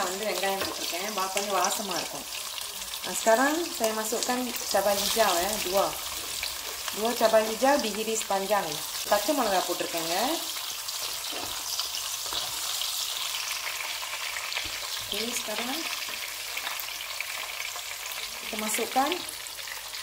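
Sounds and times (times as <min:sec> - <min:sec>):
vegetables sizzling in hot oil: 0:00.0 - 0:20.0
spatula scraping wok: 0:10.9 - 0:13.4.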